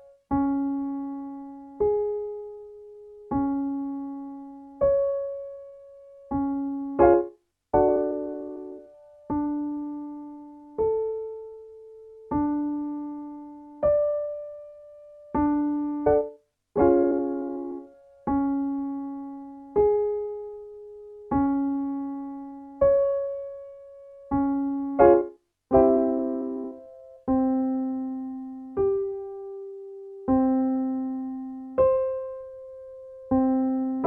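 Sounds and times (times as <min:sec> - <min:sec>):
piano chord: 0:00.0 - 0:11.6, 0:12.3 - 0:34.0
piano notes: 0:00.0 - 0:34.0.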